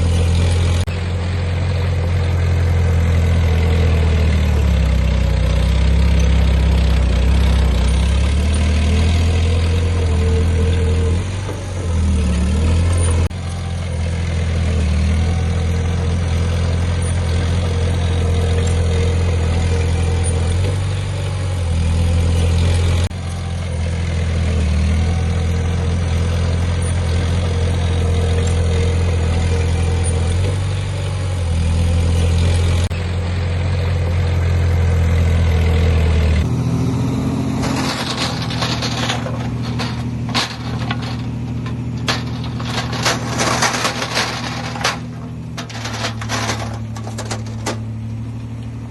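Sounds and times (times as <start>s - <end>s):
diesel engine droning: 0.0s - 48.9s.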